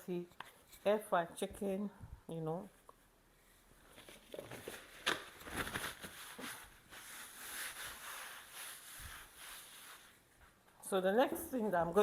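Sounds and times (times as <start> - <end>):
rustling and scraping on counter: 5.6 - 10.6.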